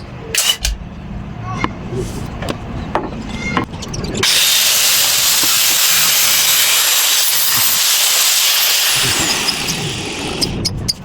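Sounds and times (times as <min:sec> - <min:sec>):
power tool whirring: 0:04.2 - 0:10.8.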